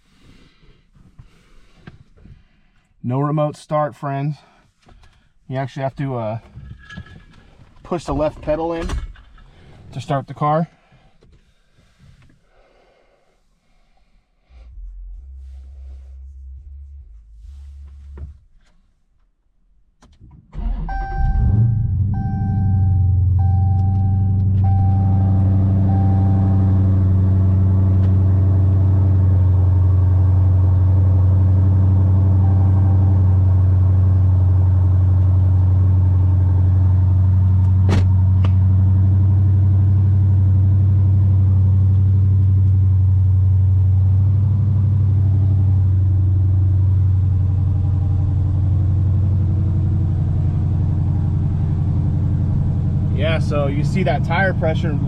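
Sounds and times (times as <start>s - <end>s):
car engine idling: 20.6s - 55.0s
warning chime beeping: 20.9s - 26.8s, 32.4s - 33.4s.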